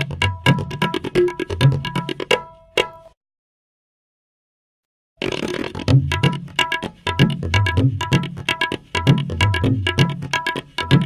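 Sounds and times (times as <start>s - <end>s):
drum strokes: 5.2s - 11.0s.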